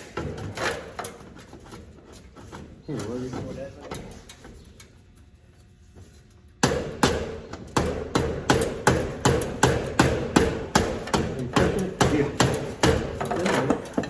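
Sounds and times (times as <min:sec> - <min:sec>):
hammer striking metal: 0:06.6 - 0:13.7.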